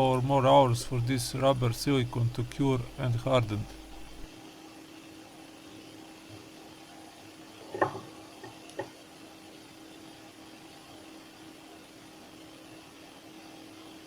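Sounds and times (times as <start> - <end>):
faint steady hum: 0.0 - 4.3.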